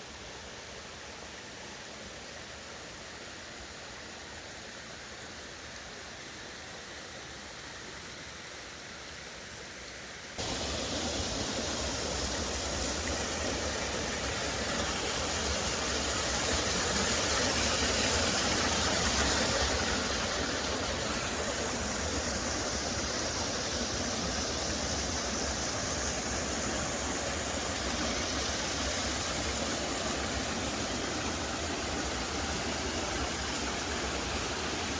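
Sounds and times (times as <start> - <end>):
water rushing over rocks: 10.4 - 34.9.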